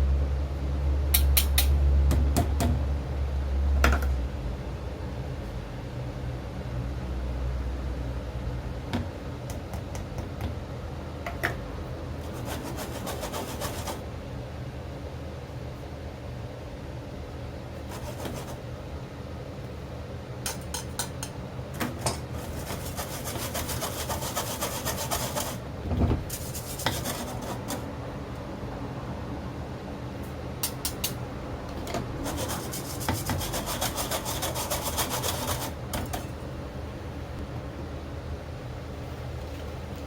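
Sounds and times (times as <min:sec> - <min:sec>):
steady low hum: 0:00.0 - 0:40.0
rapid scraping strokes: 0:12.2 - 0:14.0, 0:17.8 - 0:18.6, 0:22.3 - 0:25.6, 0:26.3 - 0:27.8, 0:32.2 - 0:35.8.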